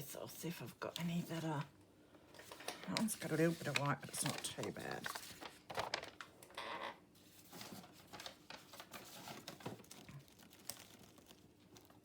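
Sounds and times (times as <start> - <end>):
paper rustling: 2.4 - 6.3, 7.2 - 12.0.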